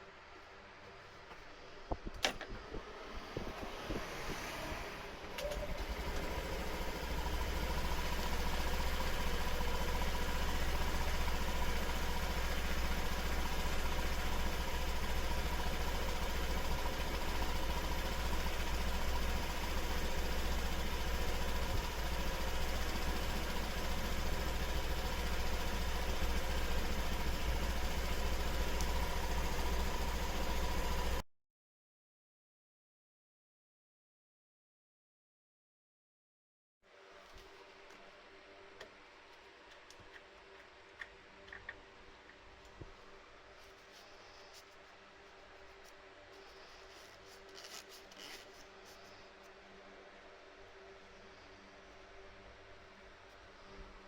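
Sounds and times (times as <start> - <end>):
scooter engine idling: 5.4 - 31.2.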